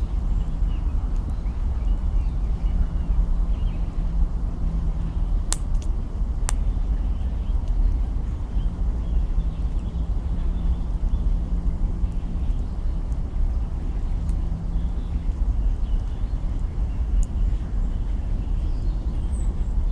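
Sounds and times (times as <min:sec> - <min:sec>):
wood crackling pops: 0:05.5 - 0:06.7.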